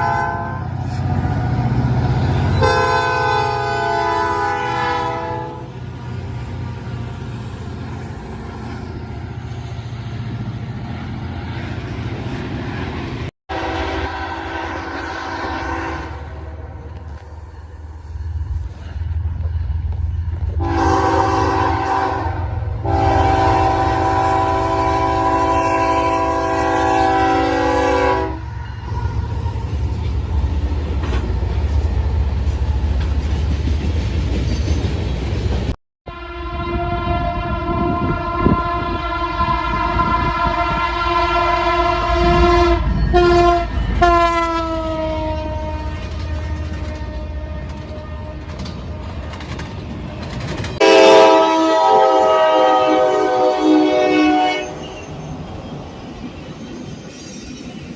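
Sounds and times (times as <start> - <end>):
locomotive horn: 0.0 - 5.8, 13.5 - 17.2, 20.5 - 29.3, 36.1 - 49.1, 50.8 - 55.2
train rumbling past: 0.0 - 57.9.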